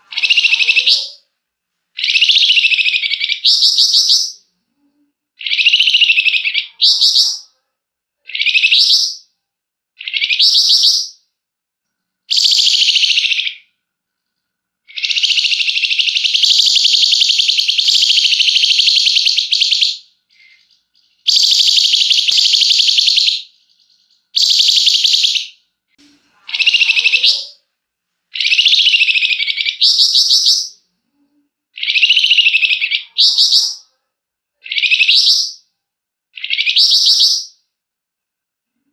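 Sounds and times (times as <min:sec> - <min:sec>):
songbird chattering song: 0:00.0 - 0:01.2, 0:02.0 - 0:04.4, 0:05.4 - 0:07.6, 0:08.3 - 0:09.3, 0:10.0 - 0:11.2, 0:12.3 - 0:13.7, 0:14.9 - 0:25.6, 0:28.3 - 0:30.8, 0:31.8 - 0:33.9, 0:34.6 - 0:35.6, 0:36.4 - 0:37.6
rattling bird trill: 0:14.9 - 0:25.5.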